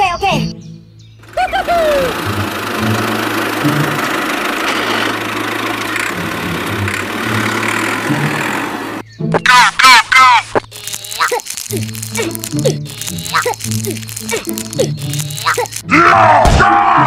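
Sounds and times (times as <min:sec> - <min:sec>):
small motor running: 0:01.2 - 0:09.0, 0:10.7 - 0:15.8.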